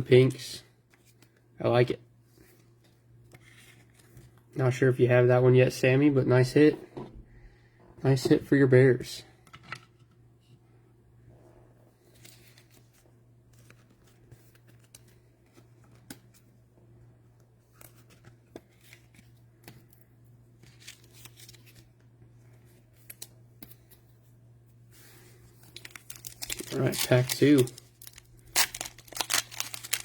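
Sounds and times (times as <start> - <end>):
trading cards clicking and rustling: 25.6 - 30.0.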